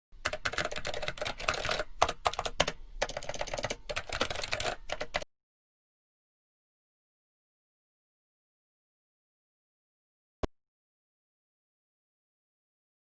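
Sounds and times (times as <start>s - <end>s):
rapid sharp clicks and clatter: 0.2s - 5.3s.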